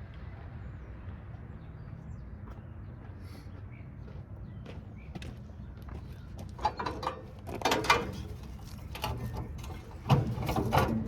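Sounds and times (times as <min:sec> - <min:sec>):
metal parts knocking and rattling: 0:06.6 - 0:11.0.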